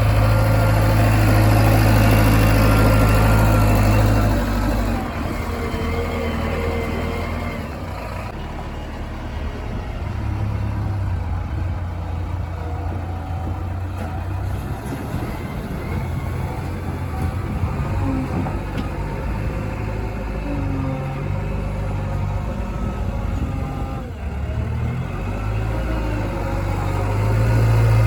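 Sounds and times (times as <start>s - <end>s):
diesel engine rumbling: 0.0s - 28.0s.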